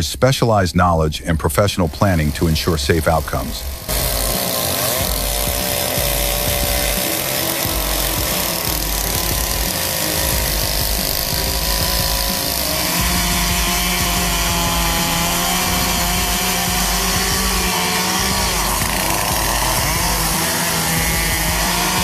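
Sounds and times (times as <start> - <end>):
chainsaw cutting: 1.2 - 22.0.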